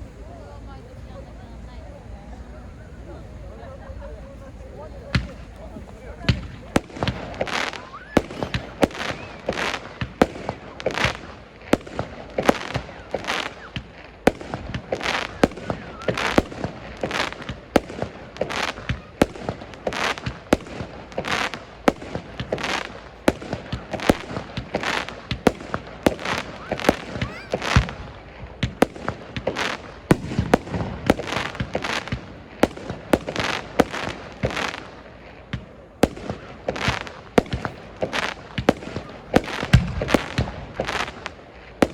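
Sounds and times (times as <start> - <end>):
firework crackles: 0.0 - 41.9
firework shells bursting: 5.1 - 41.9.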